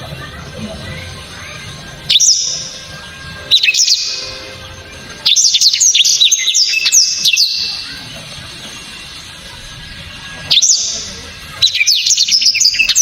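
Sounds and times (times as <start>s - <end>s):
bird singing whistled sweeps: 2.0s - 8.0s, 9.5s - 13.0s.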